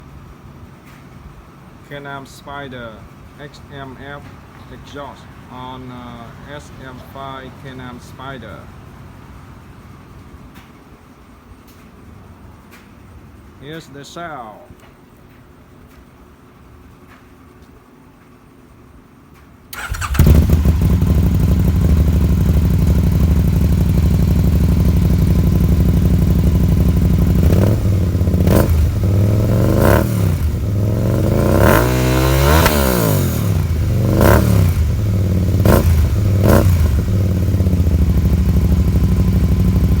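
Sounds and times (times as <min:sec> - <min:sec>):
engine throttle revs: 0:19.7 - 0:40.0
motorcycle engine idling: 0:19.8 - 0:40.0.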